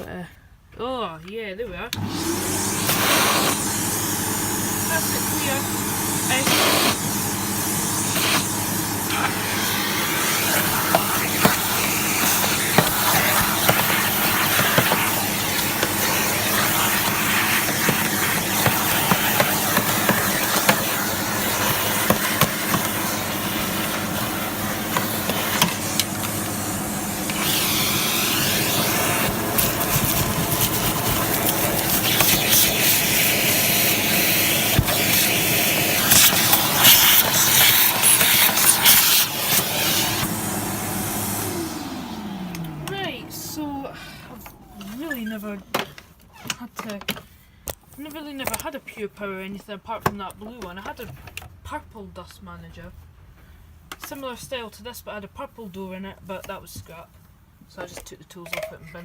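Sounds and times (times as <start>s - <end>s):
vacuum cleaner running: 1.9s - 46.0s.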